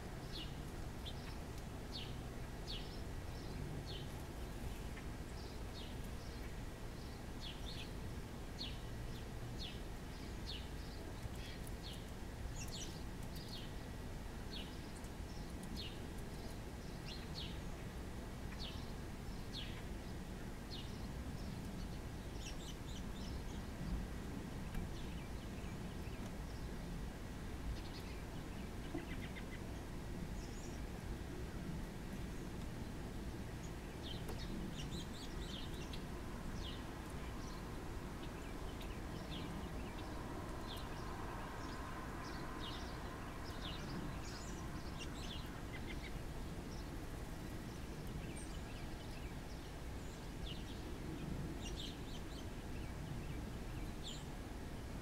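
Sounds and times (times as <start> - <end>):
low outdoor rumble: 0.0 - 55.0
small bird chip calls: 27.8 - 29.8.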